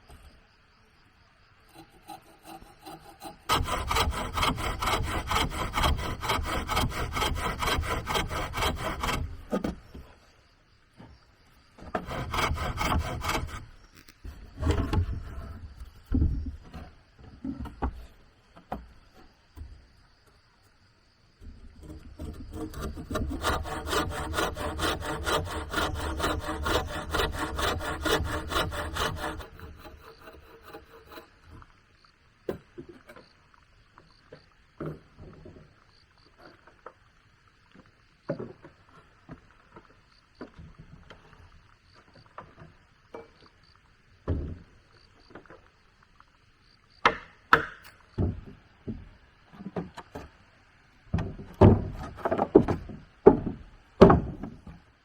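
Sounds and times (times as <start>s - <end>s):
saw cutting wood: 1.7s - 9.8s, 11.8s - 15.6s, 21.8s - 31.6s
wooden knocks and clatter: 5.7s - 10.1s, 11.8s - 19.8s, 34.8s - 35.7s, 37.8s - 41.4s, 44.2s - 44.6s, 47.0s - 50.4s, 51.1s - 54.9s.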